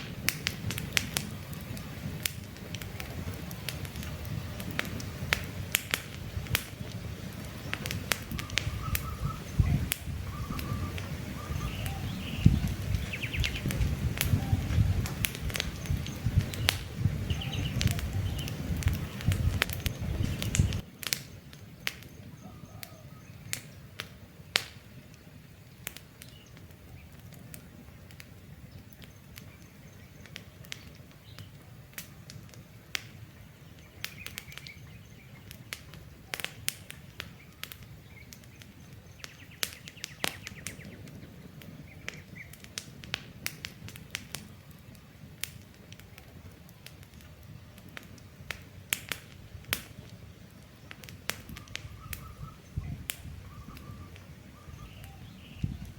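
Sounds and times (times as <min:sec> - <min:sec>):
campfire wood crackling: 0:00.0 - 0:55.9
faint bird chirps: 0:07.6 - 0:15.0, 0:15.6 - 0:20.8, 0:22.0 - 0:23.9, 0:51.5 - 0:55.9.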